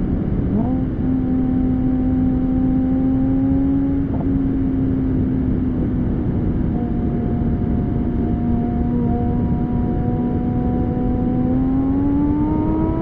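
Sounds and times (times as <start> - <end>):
sports car engine exhaust: 0.0 - 13.0.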